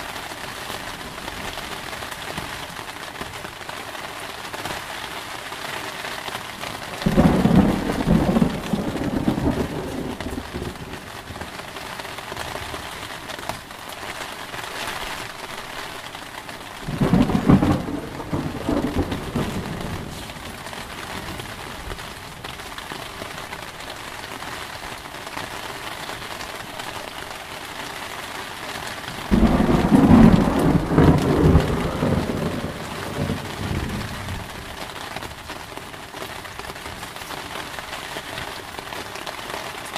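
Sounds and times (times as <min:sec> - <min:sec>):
heavy rain: 0:00.0 - 0:39.9
thunder rumbling: 0:07.0 - 0:11.4, 0:16.8 - 0:22.4, 0:29.2 - 0:34.9.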